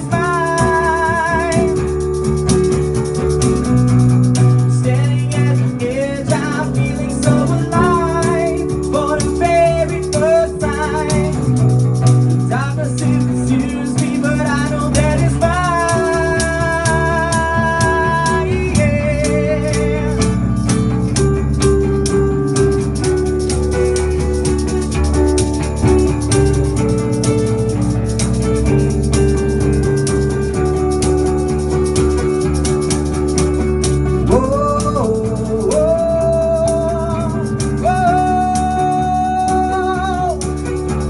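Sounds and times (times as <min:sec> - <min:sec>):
wordless singing with vibrato: 0:00.0 - 0:01.9, 0:04.7 - 0:11.6, 0:12.5 - 0:20.5, 0:34.2 - 0:40.5
acoustic guitar: 0:00.0 - 0:41.0
rhythmic percussion: 0:00.0 - 0:41.0.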